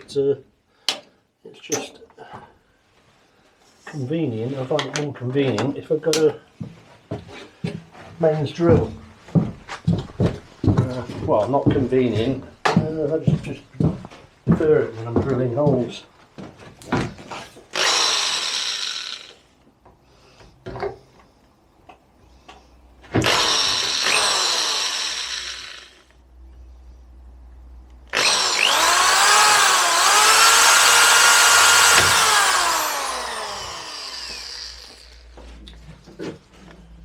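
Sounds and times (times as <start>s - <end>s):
electric drill drilling: 17.7s - 19.4s, 23.2s - 26.1s, 28.1s - 35.3s.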